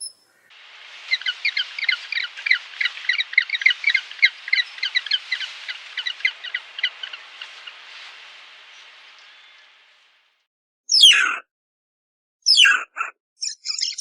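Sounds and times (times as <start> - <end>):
high chirping animal calls: 0.0 - 10.1, 10.9 - 11.4, 12.5 - 14.0
background hiss: 0.0 - 10.4.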